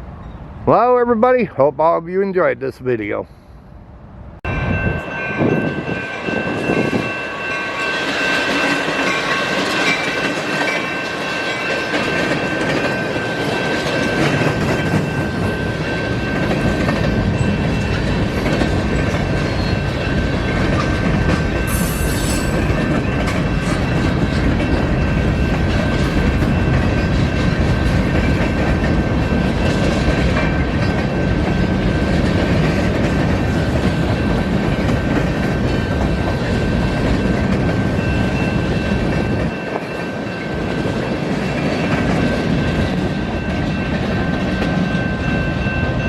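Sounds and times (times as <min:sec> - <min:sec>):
train wheels clattering: 0:06.3 - 0:46.0.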